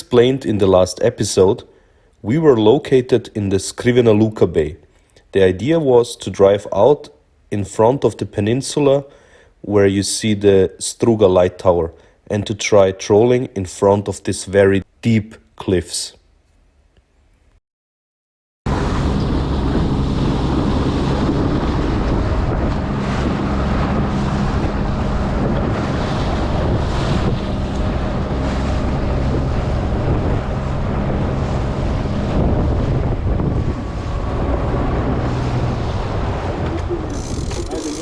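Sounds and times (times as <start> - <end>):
boat engine running: 18.7 - 38.0
water rushing along hull: 18.7 - 38.0
wind buffeting microphone: 18.7 - 38.0.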